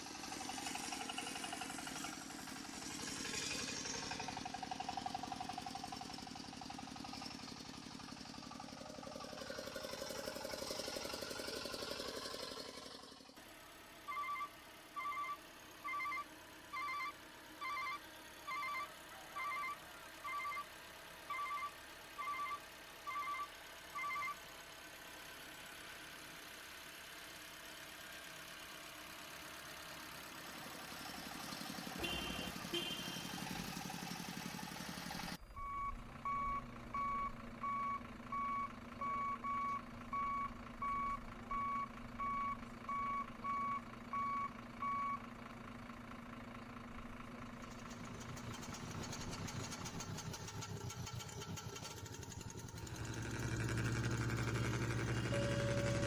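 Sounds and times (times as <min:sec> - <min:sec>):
reversing beeper beeping: 0:14.1 - 0:16.2, 0:16.8 - 0:20.6, 0:21.3 - 0:24.4, 0:35.5 - 0:45.2, 0:55.0 - 0:56.0.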